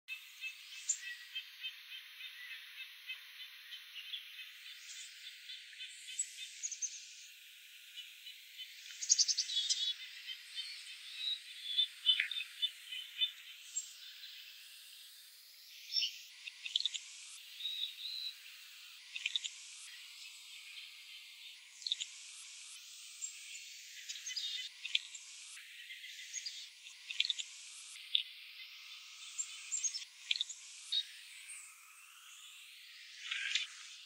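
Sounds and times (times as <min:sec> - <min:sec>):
small birds chirping: 0:00.1 - 0:34.0.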